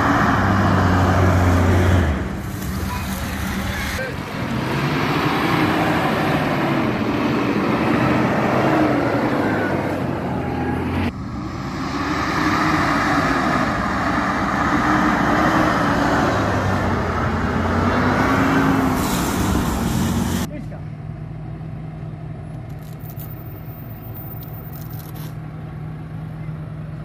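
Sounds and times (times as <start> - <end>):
off-road vehicle engine revving: 0.0 - 20.5.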